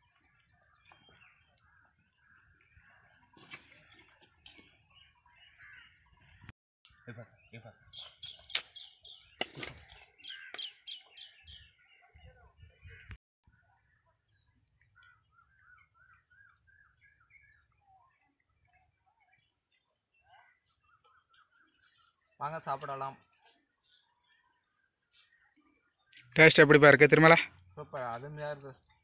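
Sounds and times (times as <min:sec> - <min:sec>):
insects droning: 0:00.0 - 0:29.0
birds clucking calls: 0:03.3 - 0:11.7.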